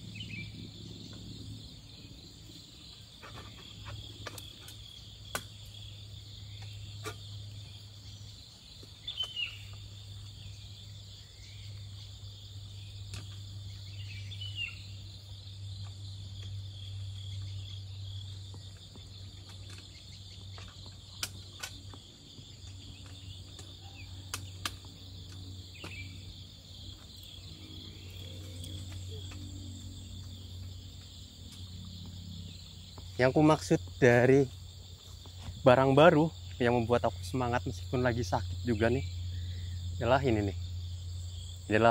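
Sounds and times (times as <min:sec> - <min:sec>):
crickets trilling: 0:00.0 - 0:41.9
low steady hum: 0:03.6 - 0:41.8
small clicks and knocks: 0:19.3 - 0:26.0.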